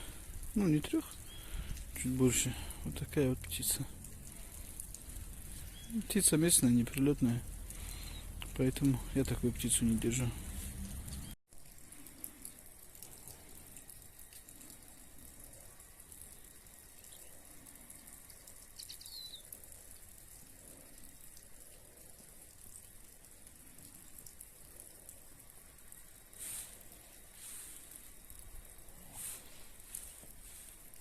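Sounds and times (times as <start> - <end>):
faint outdoor hiss: 0.0 - 31.0
small bird chirp: 1.2 - 1.6, 5.6 - 6.0, 11.0 - 11.4, 18.3 - 19.6.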